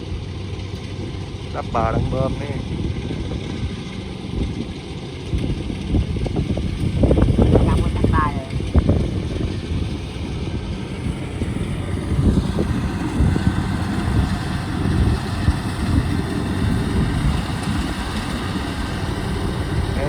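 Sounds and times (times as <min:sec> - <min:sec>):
combine harvester rumbling: 0:00.0 - 0:20.0.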